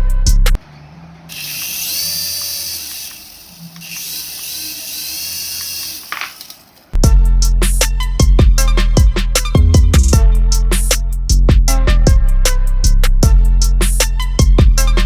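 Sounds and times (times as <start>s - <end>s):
toy motor and gears whirring: 1.3s - 7.0s
background music: 7.0s - 15.0s.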